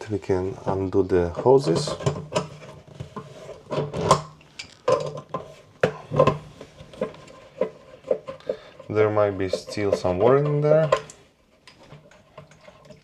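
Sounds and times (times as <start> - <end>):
metal fittings clinking and scraping: 0.6 - 13.0.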